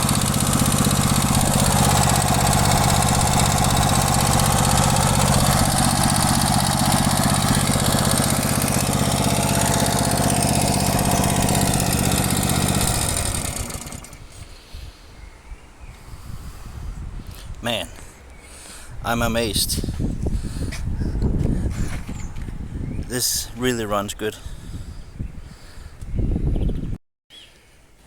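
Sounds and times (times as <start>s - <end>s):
lawn mower engine running: 0.0s - 14.4s.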